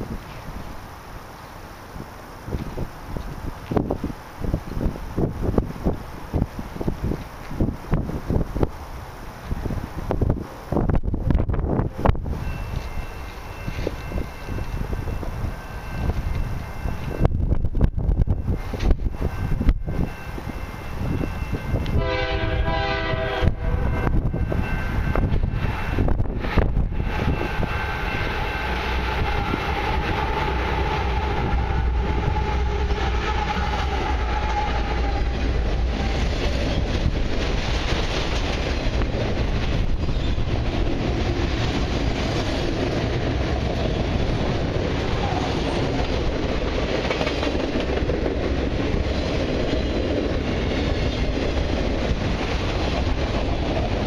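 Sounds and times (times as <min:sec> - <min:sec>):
wheels clattering on rails: 0:00.0 - 0:22.0, 0:23.9 - 0:54.0
diesel locomotive rumble and whine: 0:00.0 - 0:54.0
train horn: 0:21.8 - 0:24.3, 0:25.5 - 0:36.3.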